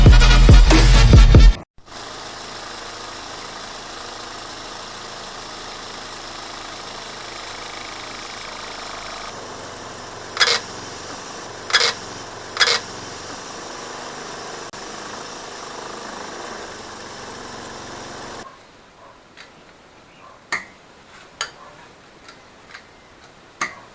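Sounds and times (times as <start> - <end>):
car engine idling: 1.8 - 18.5
short sharp high squeaks: 10.3 - 10.9, 11.7 - 13.2.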